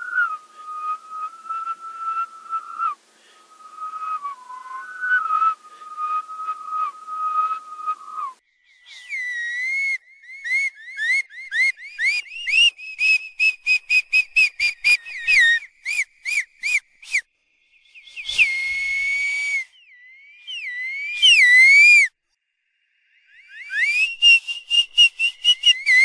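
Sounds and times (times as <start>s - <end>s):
short high whistle chirps: 0.0s - 22.2s, 23.2s - 26.0s
long breathy whistles: 0.0s - 26.0s.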